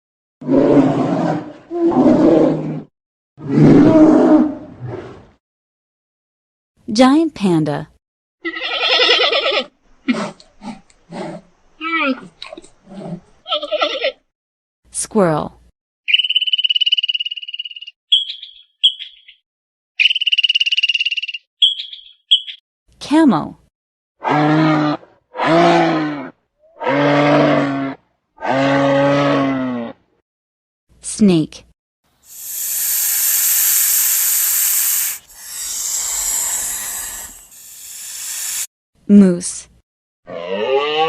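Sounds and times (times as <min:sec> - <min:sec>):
snake hissing: 0:32.2 - 0:38.7
squirrel chattering trill: 0:32.3 - 0:38.6
squirrel short chirps: 0:32.3 - 0:38.6.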